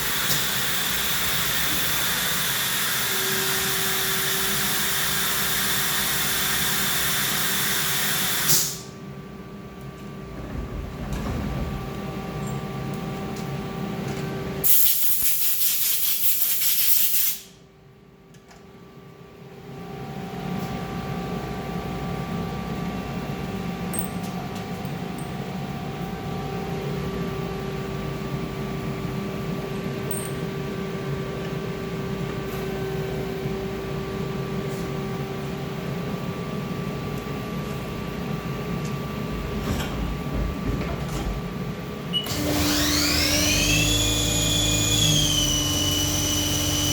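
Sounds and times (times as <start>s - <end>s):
lathe mechanical hum: 30.6s - 46.9s.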